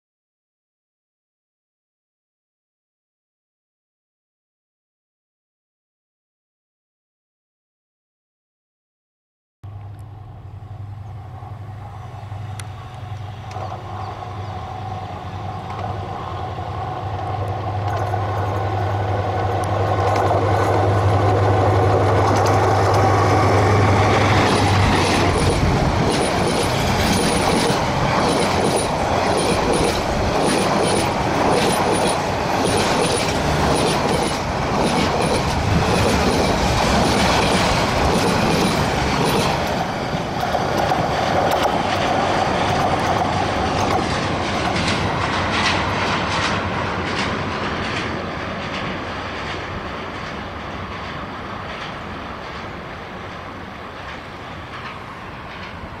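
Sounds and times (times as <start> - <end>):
locomotive engine droning: 9.7 - 56.0
train coaches rumbling past: 9.7 - 56.0
wheels clattering over rail joints: 17.2 - 56.0
wheel squeals: 23.9 - 39.7.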